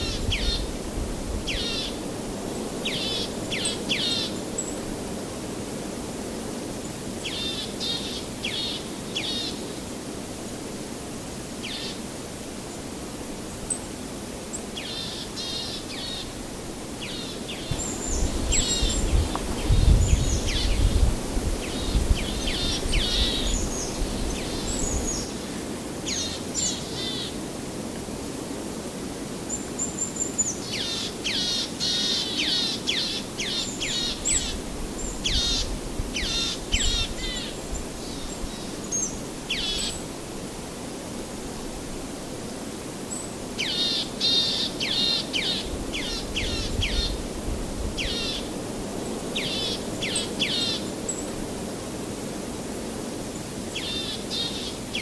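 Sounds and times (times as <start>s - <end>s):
outdoor background hiss: 0.0s - 55.0s
small birds chirping: 17.0s - 21.0s.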